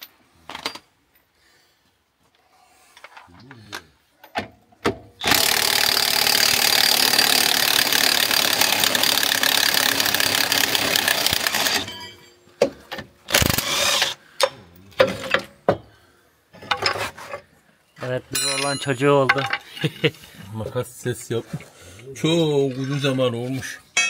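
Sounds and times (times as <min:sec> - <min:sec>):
pneumatic impact wrench hammering: 0:05.2 - 0:14.5.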